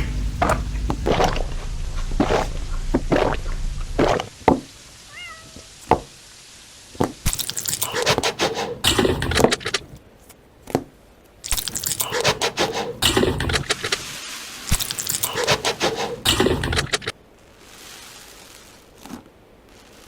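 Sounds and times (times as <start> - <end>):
high-pitched meow-like cry: 5.1 - 5.8
crunching and chewing: 7.3 - 9.9, 11.5 - 13.2.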